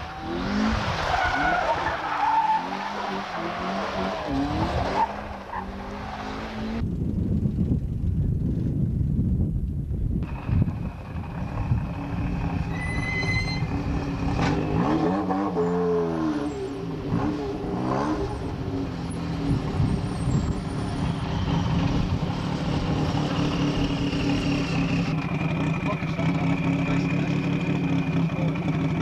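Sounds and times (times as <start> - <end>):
car engine revving: 0.0 - 6.8, 10.3 - 29.0
car engines idling: 10.2 - 14.7, 16.5 - 29.0.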